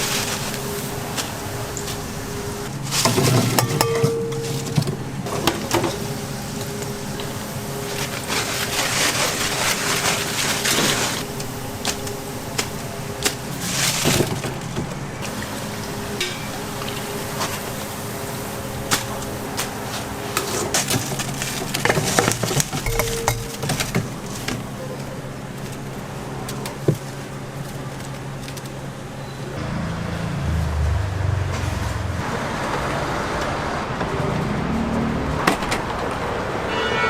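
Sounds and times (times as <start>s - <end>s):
utensils and trays clinking: 2.9s - 6.2s, 20.4s - 24.6s
steady hum: 22.9s - 24.6s.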